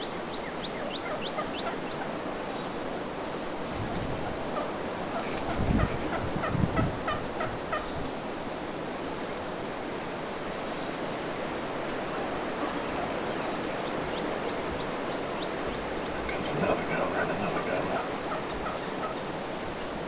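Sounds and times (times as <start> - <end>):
turkeys gobbling: 16.1 - 19.3.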